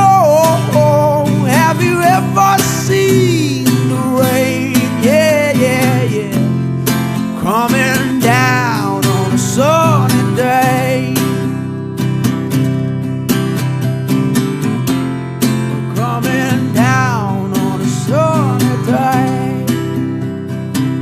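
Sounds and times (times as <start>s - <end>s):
man singing: 0.0s - 11.6s, 15.8s - 20.2s
strummed acoustic guitar: 0.0s - 21.0s.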